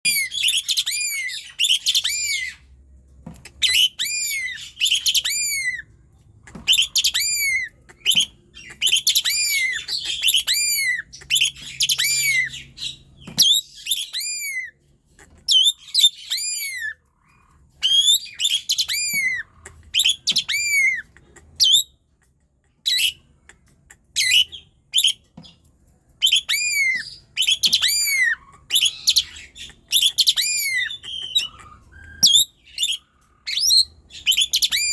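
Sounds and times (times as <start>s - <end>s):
starling singing: 6.6s - 14.7s, 15.4s - 17.0s, 17.8s - 22.0s, 26.2s - 34.9s.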